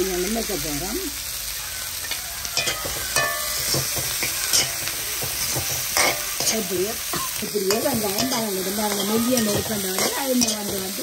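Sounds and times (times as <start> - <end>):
shallots sizzling in oil: 0.0 - 11.0
spoon scraping and knocking pan: 2.6 - 11.0.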